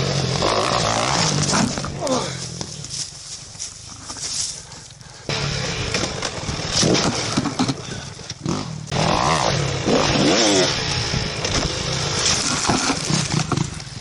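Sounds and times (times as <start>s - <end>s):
dirt bike engine revving: 0.0s - 2.4s, 5.3s - 14.0s.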